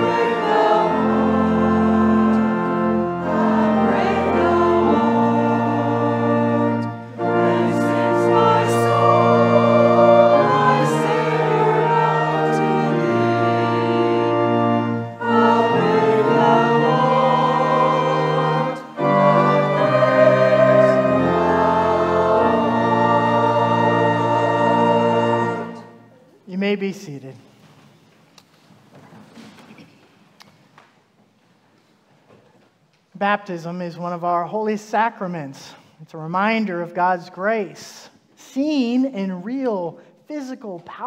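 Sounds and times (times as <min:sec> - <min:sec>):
voices singing a hymn: 0:00.0 - 0:26.1
pipe organ accompaniment: 0:00.0 - 0:27.2.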